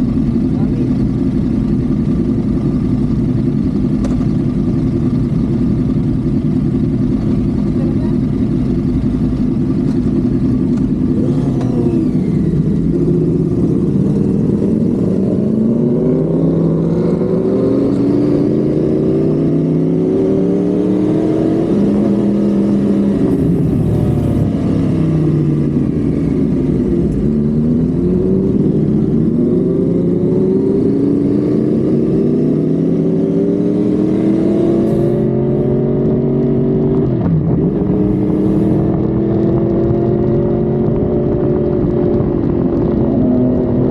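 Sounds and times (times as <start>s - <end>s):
car engine accelerating through gears: 10.7s - 43.9s
passing car engines: 11.1s - 31.4s, 32.0s - 39.5s.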